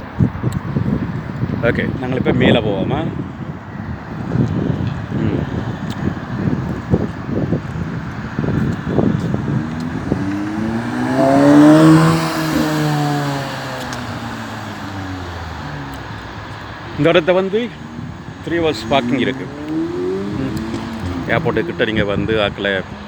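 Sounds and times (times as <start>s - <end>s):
gusty low rumbling: 0.0s - 23.0s
car driving past: 9.2s - 22.1s.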